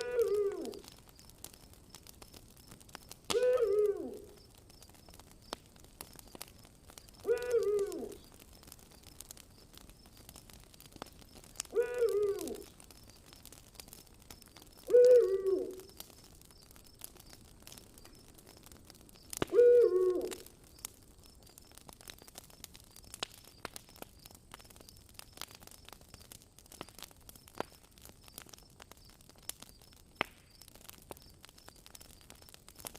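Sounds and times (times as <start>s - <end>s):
owl hooting: 0.0s - 0.8s, 3.4s - 4.2s, 7.2s - 8.2s, 11.7s - 12.7s, 14.8s - 15.8s, 19.5s - 20.4s
campfire crackling and popping: 0.0s - 32.9s.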